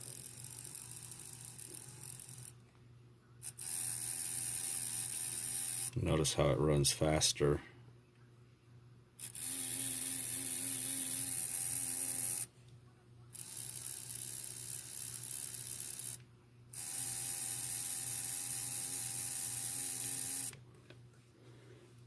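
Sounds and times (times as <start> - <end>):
small electric motor and gears whirring: 0.0 - 2.6, 3.4 - 6.0, 9.2 - 12.5, 13.3 - 20.6.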